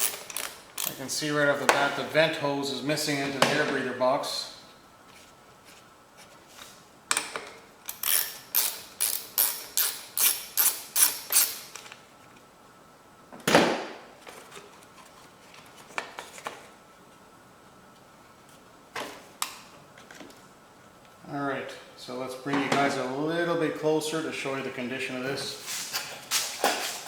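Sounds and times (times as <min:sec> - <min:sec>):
hand ratchet clicking: 0:00.0 - 0:01.0, 0:07.9 - 0:11.8
tools clicking: 0:00.0 - 0:01.0, 0:07.1 - 0:11.9.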